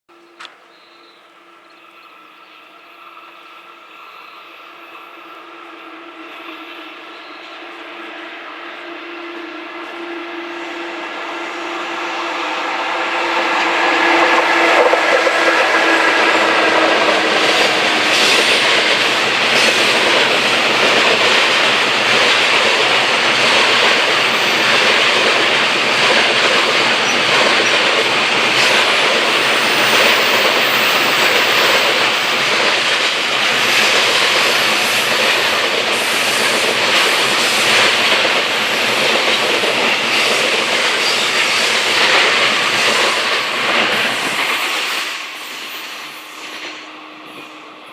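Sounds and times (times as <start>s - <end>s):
locomotive humming tone: 0.1s - 47.9s
wheels clacking over rail joints: 13.0s - 44.7s.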